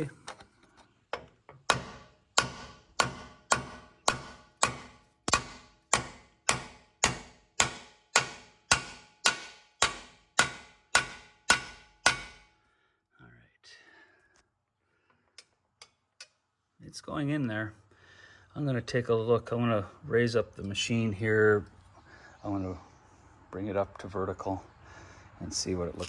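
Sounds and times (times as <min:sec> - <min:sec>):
hammer striking metal pin: 0:01.1 - 0:12.5.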